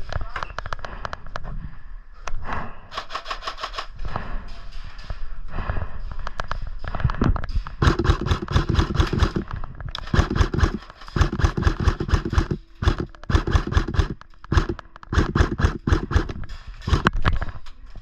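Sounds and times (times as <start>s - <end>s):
airsoft guns firing bursts: 7.8s - 17.1s.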